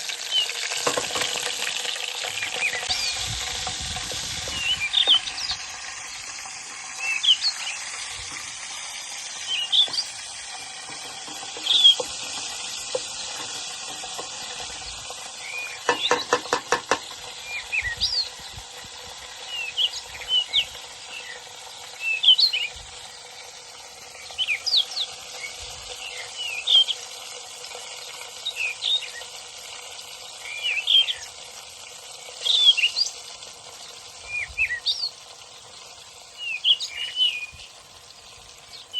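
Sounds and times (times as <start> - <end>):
steady hiss: 0.0 - 38.9
birds chirping: 2.2 - 3.8, 4.4 - 18.7, 19.4 - 22.8, 36.4 - 38.9
rapid taps: 15.9 - 17.2.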